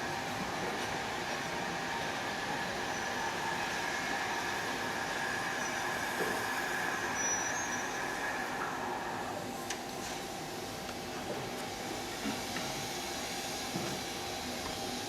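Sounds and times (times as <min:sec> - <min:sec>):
train rolling on track: 0:00.1 - 0:09.4.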